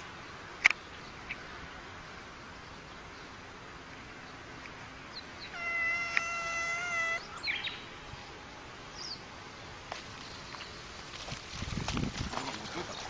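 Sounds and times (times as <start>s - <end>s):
cat yowling: 5.5s - 7.3s
short high squeaks: 5.5s - 7.4s.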